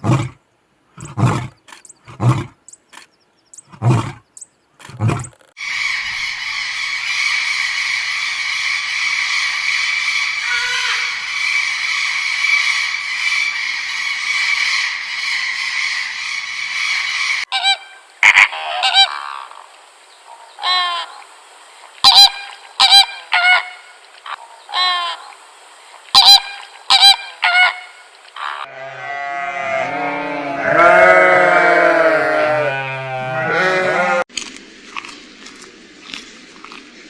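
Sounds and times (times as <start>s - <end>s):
animal honking calls: 10.4s - 11.2s, 26.2s - 34.2s.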